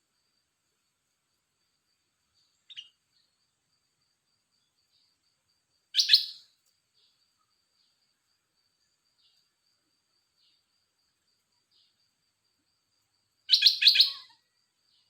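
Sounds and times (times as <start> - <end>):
insect trill: 0.0 - 15.0
bird calling: 6.0 - 6.4, 13.5 - 14.4.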